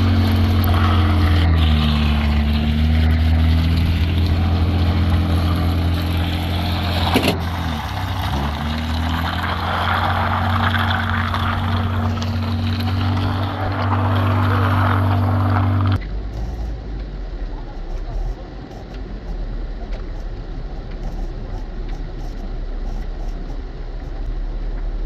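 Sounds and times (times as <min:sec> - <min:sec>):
rushing noise: 0:00.0 - 0:16.8
vehicle engine humming: 0:00.0 - 0:25.0.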